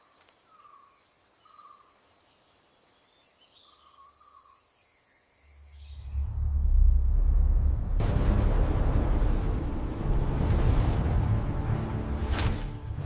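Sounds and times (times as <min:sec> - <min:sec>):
bird chirps: 0:00.0 - 0:06.4
insect drone: 0:00.0 - 0:13.0
deep rumble: 0:05.6 - 0:13.0.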